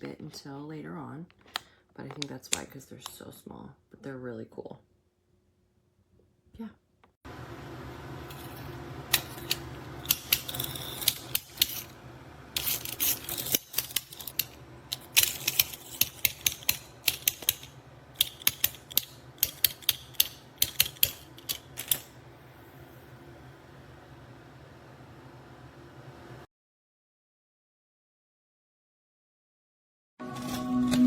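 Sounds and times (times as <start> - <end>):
toy car motors ratcheting: 9.1 - 11.9, 12.6 - 22.1.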